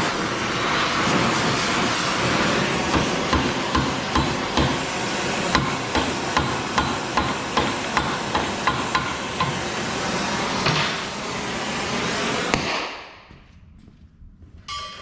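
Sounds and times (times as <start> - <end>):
hammer striking metal: 2.9 - 4.9, 5.5 - 9.8, 14.7 - 15.0.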